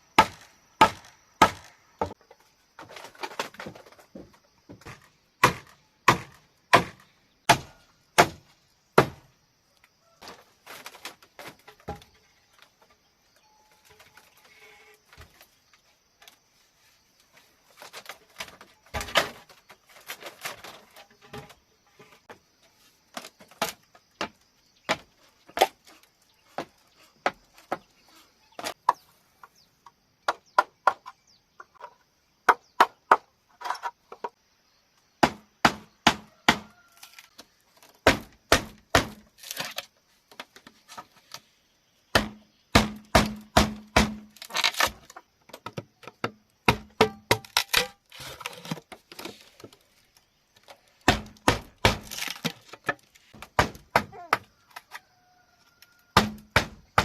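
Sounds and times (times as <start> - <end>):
knocks and chops on bamboo: 0.1 - 9.3, 17.9 - 21.5, 23.1 - 29.1, 30.2 - 31.2, 32.4 - 34.4, 35.2 - 39.9, 42.1 - 49.4, 51.0 - 54.9, 56.1 - 57.0.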